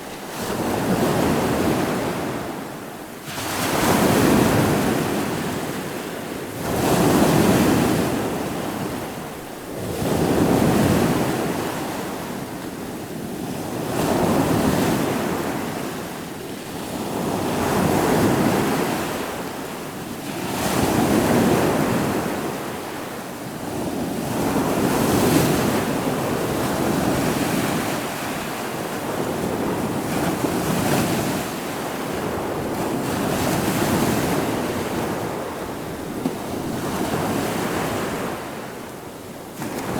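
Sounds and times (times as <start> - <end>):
wind: 0.0 - 39.9.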